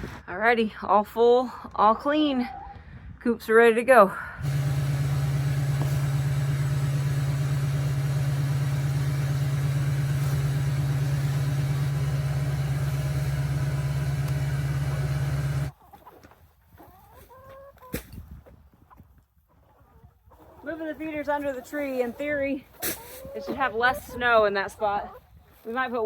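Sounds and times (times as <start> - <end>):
low mechanical hum: 4.4 - 15.7
chickens clucking: 4.4 - 18.0, 18.9 - 25.2.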